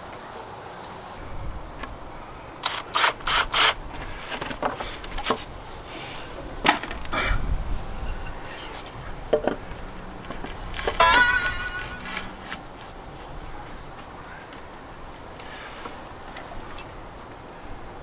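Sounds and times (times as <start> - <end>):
wood and tools knocking: 3.0 - 5.5, 9.3 - 12.9.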